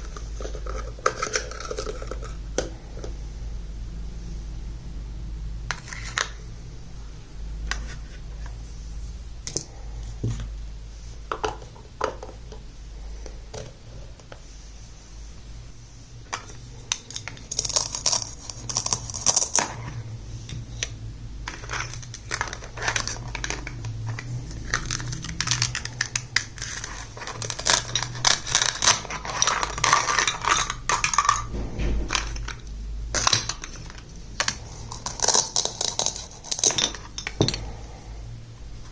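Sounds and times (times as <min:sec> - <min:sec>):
plastic toy pieces clicking: 0:16.9 - 0:19.8, 0:21.5 - 0:31.5, 0:33.1 - 0:37.5.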